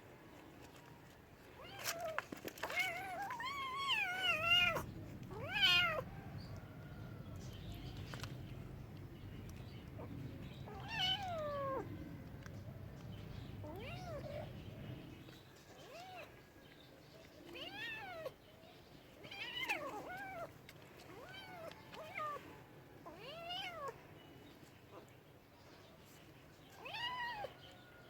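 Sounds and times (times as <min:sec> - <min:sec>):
cat meowing: 0:01.6 - 0:06.6, 0:10.0 - 0:12.3, 0:13.5 - 0:14.6, 0:26.8 - 0:27.6.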